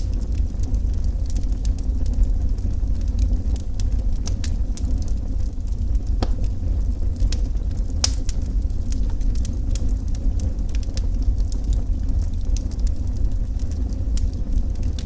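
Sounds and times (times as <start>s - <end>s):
low fire rumble: 0.0s - 15.0s
wood fire crackling: 0.0s - 15.0s
sharp pops of fire: 4.2s - 11.8s.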